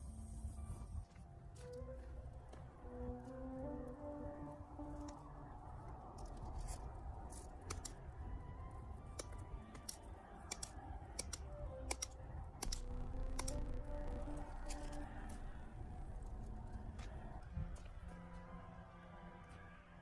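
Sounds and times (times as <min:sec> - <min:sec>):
sharp clicks and snaps: 0:07.3 - 0:08.1, 0:09.1 - 0:15.4
low steady rumble: 0:11.7 - 0:19.1.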